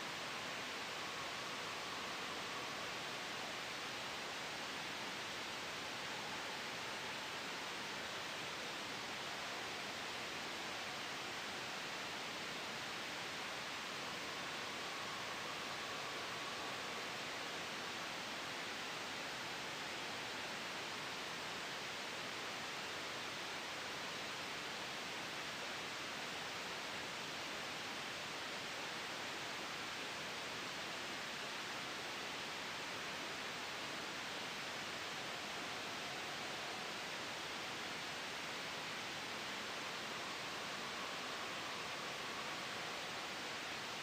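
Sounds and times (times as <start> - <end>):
soft wind hiss: 0.0 - 44.0
white noise: 0.0 - 44.0.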